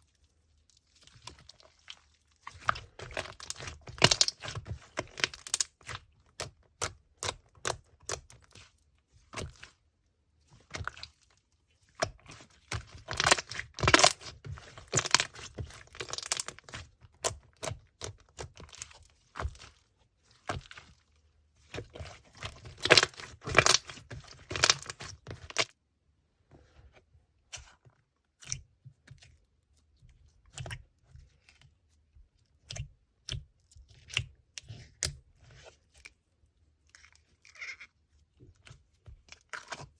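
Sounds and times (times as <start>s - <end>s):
slime squished by hand: 0.8s - 9.8s, 10.6s - 21.0s, 21.6s - 25.7s.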